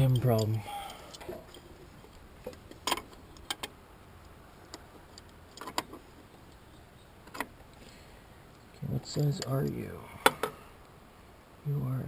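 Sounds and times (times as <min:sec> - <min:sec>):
metal wrenches clinking: 0:00.0 - 0:01.7.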